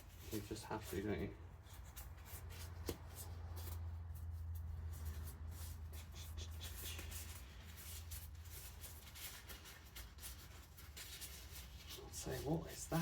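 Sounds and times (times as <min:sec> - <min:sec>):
gloved hands rustling and scraping: 0:00.0 - 0:13.0.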